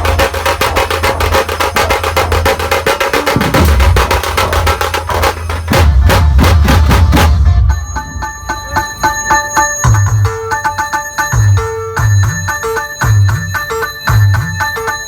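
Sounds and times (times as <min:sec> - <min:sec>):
fast dense drumming: 0:00.0 - 0:10.5
heavy bass: 0:03.4 - 0:09.1.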